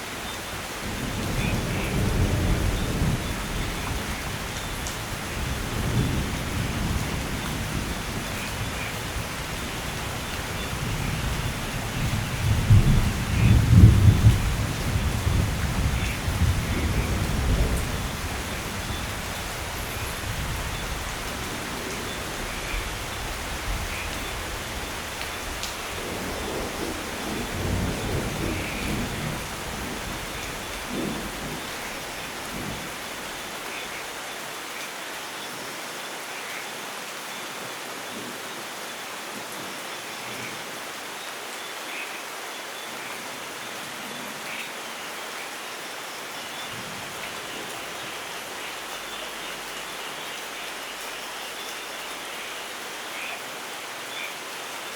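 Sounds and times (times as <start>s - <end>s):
heavy rain: 0.0s - 54.9s
thunder rumbling: 5.3s - 32.9s.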